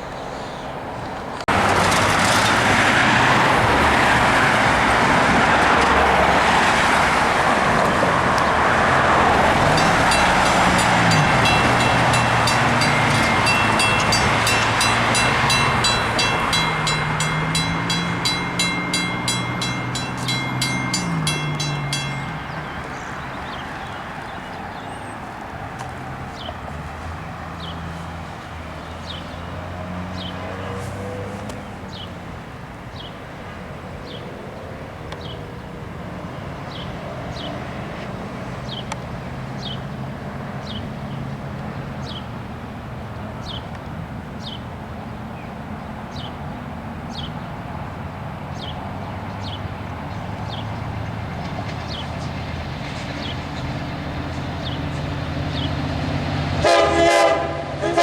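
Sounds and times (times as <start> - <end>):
railroad crossing bell: 1.5 - 25.0, 49.3 - 58.0
low engine rumble: 7.2 - 29.1.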